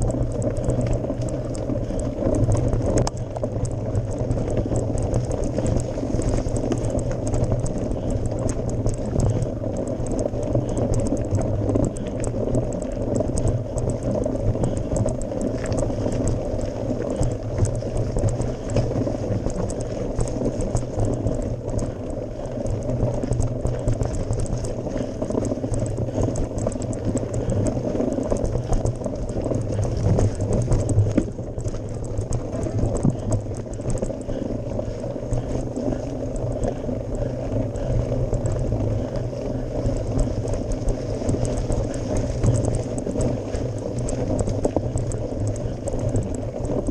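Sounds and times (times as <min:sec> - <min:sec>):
bike tyres crunching on gravel: 0:00.0 - 0:46.8
fine clicks and rattles: 0:00.0 - 0:46.9.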